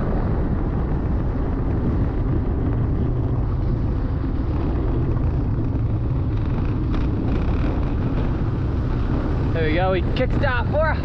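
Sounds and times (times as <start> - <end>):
motorbike road noise: 0.0 - 11.0
wind rumble: 0.0 - 11.0.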